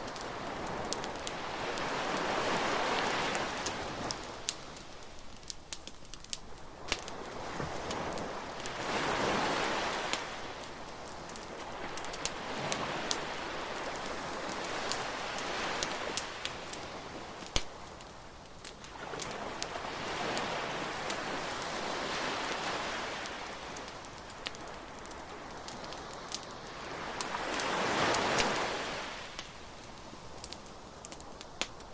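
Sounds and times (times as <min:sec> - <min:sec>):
bonfire crackling and popping: 0:00.0 - 0:31.9.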